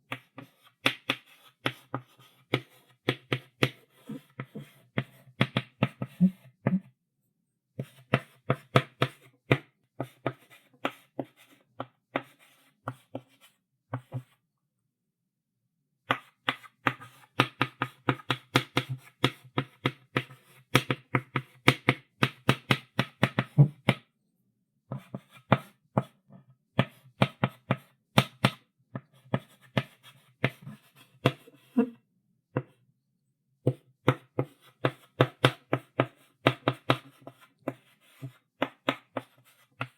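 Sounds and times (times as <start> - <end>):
chalk writing on blackboard: 0.1 - 6.5, 7.8 - 14.3, 16.1 - 21.6, 29.0 - 31.9, 33.7 - 39.9.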